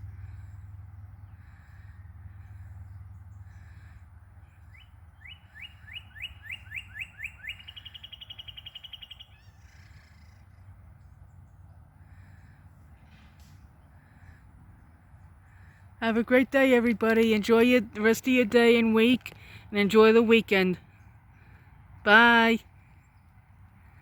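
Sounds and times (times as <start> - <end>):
songbird whistling and trilling: 4.7 - 10.4.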